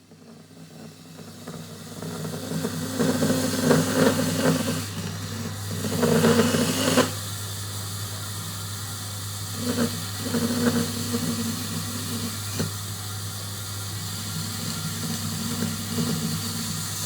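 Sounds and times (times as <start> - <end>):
power tool motor humming: 2.2 - 7.3, 9.5 - 17.0.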